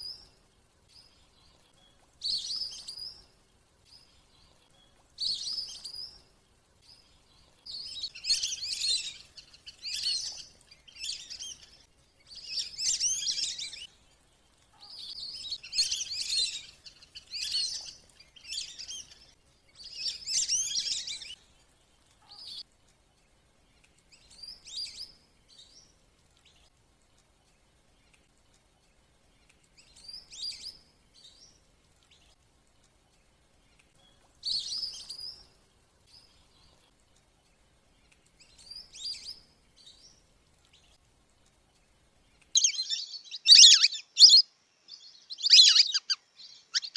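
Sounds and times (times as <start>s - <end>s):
ducks twittering whistles: 42.6s - 44.4s, 45.3s - 46.9s.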